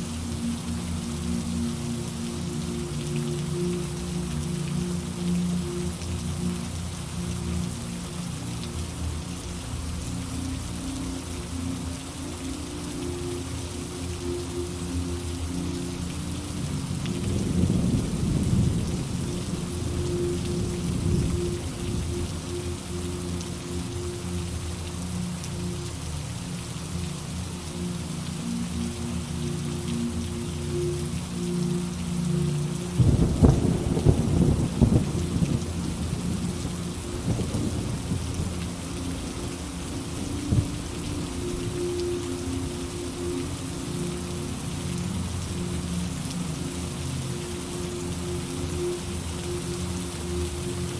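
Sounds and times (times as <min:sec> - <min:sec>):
rain hissing: 0:00.0 - 0:50.9
raindrops ticking: 0:00.0 - 0:50.9
thunder rumbling: 0:33.0 - 0:38.8.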